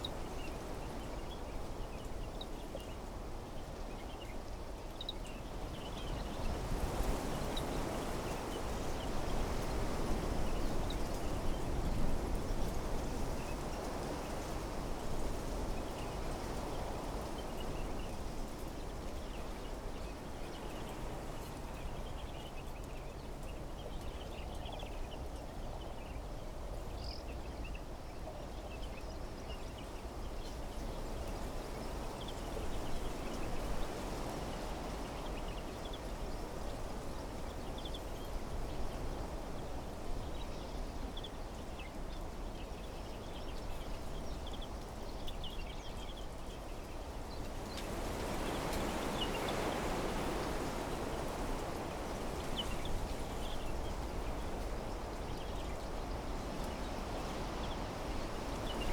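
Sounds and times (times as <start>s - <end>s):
wind through trees: 0.0s - 58.9s
small birds chirping: 34.5s - 58.9s.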